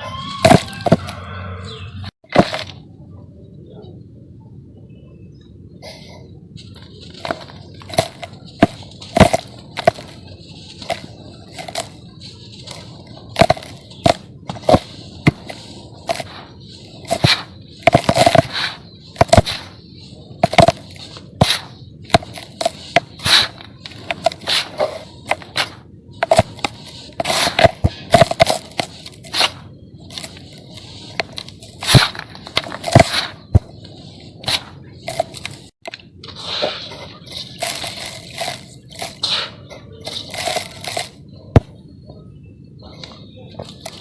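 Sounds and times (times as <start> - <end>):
sand-cement chunks crunching: 0.1 - 1.2, 6.8 - 41.7, 43.6 - 44.0
faint gritty rustle: 6.6 - 41.4
cement chunks cracking and crunching: 37.3 - 39.2.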